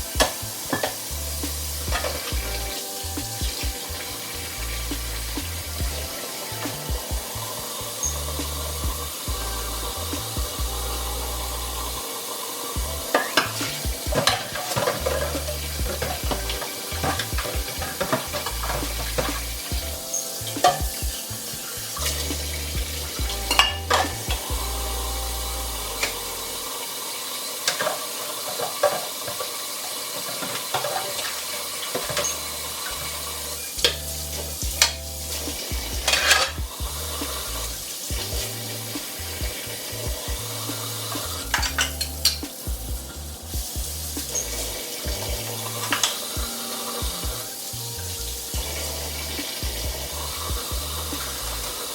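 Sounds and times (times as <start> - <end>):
dishes and cutlery clattering: 41.5 - 42.7.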